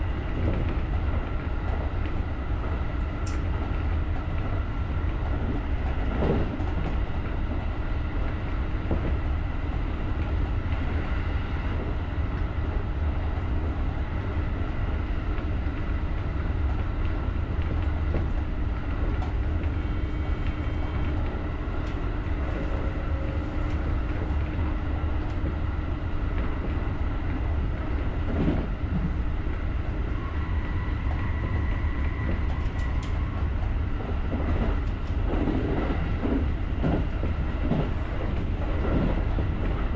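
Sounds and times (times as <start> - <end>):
train wheels rumbling on rails: 0.0 - 39.9
light clicks: 3.2 - 3.5.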